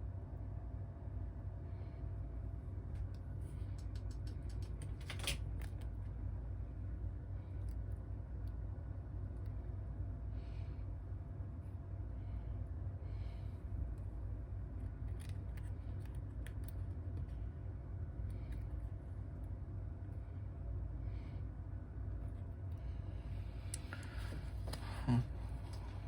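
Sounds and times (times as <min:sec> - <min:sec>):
steady low hum: 0:00.0 - 0:26.0
light clicks and taps of tools: 0:03.0 - 0:05.9.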